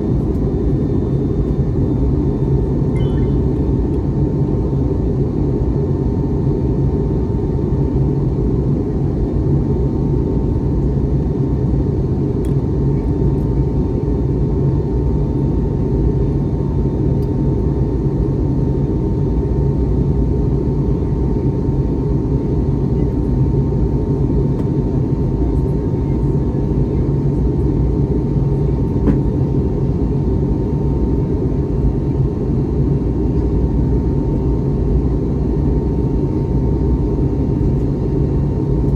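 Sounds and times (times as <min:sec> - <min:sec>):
faint constant whine: 0:00.0 - 0:04.3
aircraft cabin engine rush: 0:00.0 - 0:38.9.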